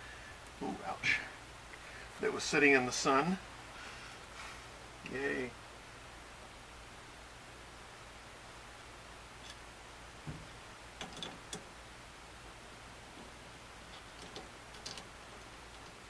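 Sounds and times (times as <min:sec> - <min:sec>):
steady low hum: 0:00.0 - 0:16.0
soft thump: 0:10.2 - 0:10.6.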